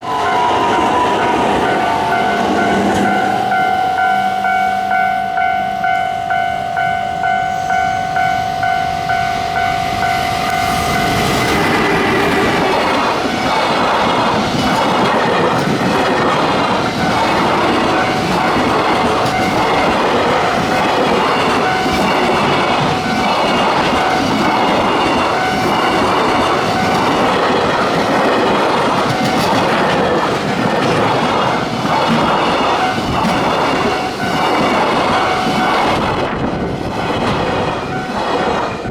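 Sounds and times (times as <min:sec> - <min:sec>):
pulsing high ringing tone: 0:00.0 - 0:13.9
freight train passing: 0:00.0 - 0:38.9
wagons clattering over rail joints: 0:11.4 - 0:38.9.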